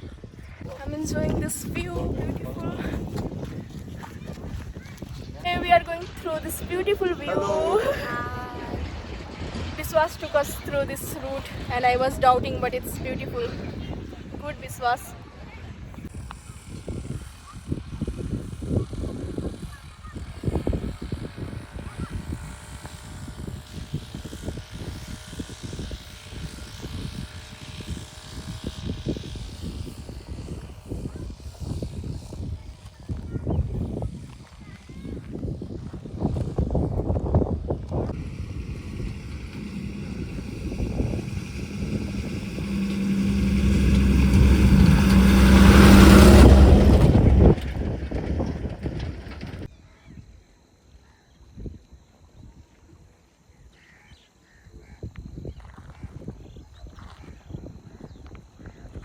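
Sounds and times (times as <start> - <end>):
wind buffeting microphone: 0.0 - 50.3
vehicle engine approaching: 5.4 - 15.1, 37.9 - 49.7.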